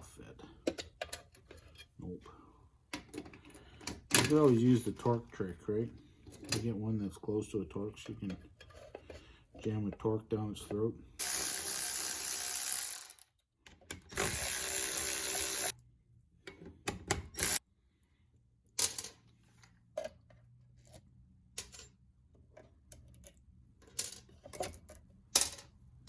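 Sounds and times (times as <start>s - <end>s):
handheld power tool running: 11.2s - 13.2s, 14.2s - 15.7s, 17.4s - 17.6s.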